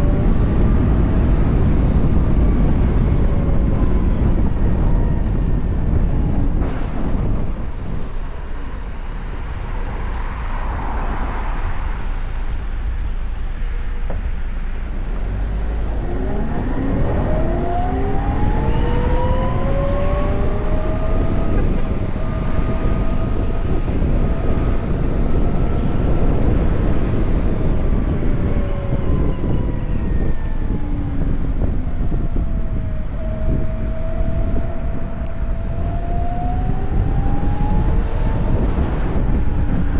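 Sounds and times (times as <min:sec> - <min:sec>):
road rumble: 0:00.0 - 0:39.9
wind rushing over microphone: 0:00.0 - 0:39.9.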